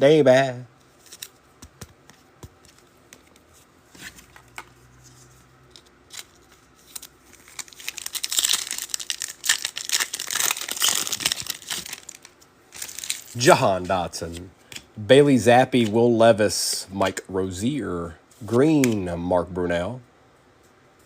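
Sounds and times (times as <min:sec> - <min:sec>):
foil pack crinkling and tearing: 0:06.1 - 0:13.5.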